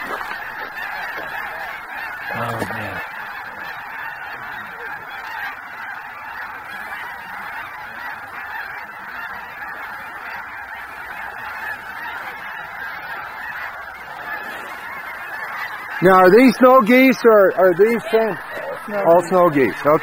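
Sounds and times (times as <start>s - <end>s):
flock of geese honking: 0.0s - 20.0s.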